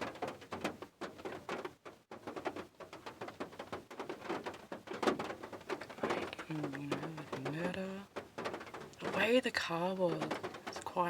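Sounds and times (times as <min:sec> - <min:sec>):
rain drops pattering: 0:00.0 - 0:11.0.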